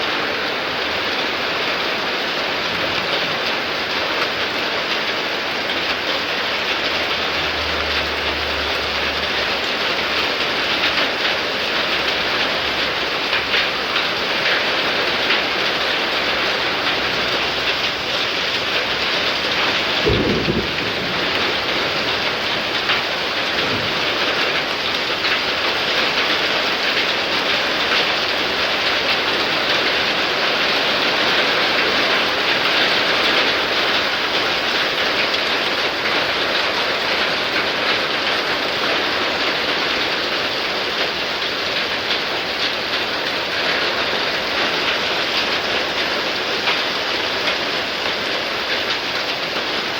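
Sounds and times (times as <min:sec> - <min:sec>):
heavy rain pouring: 0:00.0 - 0:49.9
low thunder rumble: 0:16.9 - 0:25.0
thunder clap: 0:16.9 - 0:25.3.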